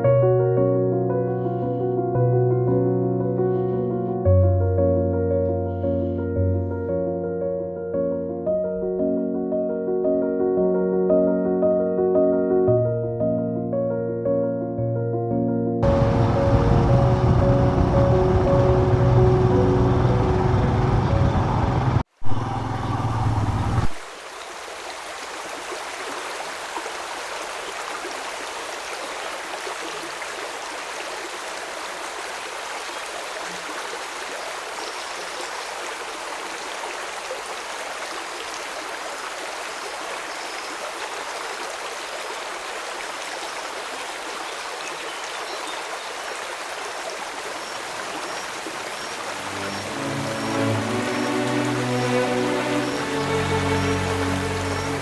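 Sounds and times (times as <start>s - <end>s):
flowing water rushing: 15.8s - 55.0s
background music: 49.3s - 55.0s.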